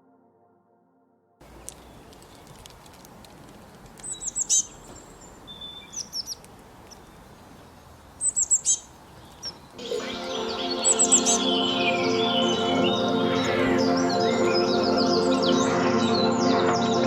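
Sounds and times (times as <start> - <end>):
soft sustained music: 0.0 - 2.0, 9.8 - 17.0
faint outdoor hiss: 1.4 - 15.7
songbird chirping: 1.4 - 17.0.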